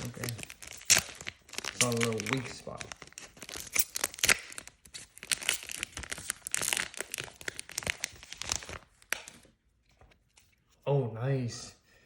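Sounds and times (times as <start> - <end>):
foil wrapper crinkling and tearing: 0.0 - 9.5.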